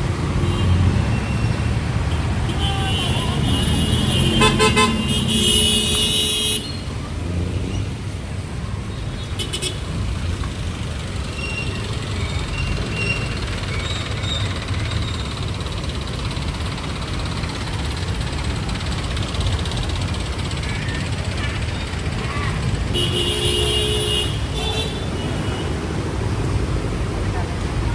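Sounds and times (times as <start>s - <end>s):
traffic rumble: 0.0s - 27.9s
vehicle horn: 2.1s - 6.8s, 22.9s - 25.8s.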